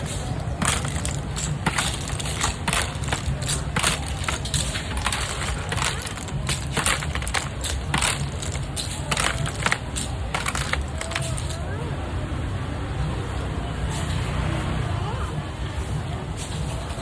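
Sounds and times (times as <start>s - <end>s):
utensils clattering: 0.0s - 11.7s
crowd hubbub: 0.0s - 17.0s.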